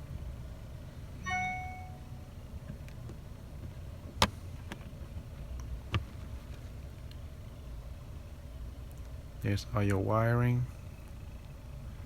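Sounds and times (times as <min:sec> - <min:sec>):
low hum: 0:00.0 - 0:05.9
short ringing tone: 0:01.2 - 0:02.3.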